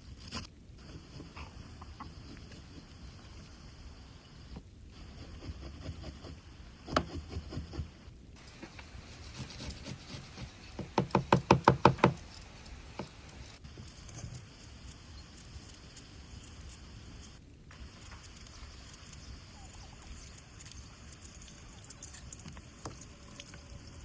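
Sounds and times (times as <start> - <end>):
knocking on wood: 10.8 - 12.2.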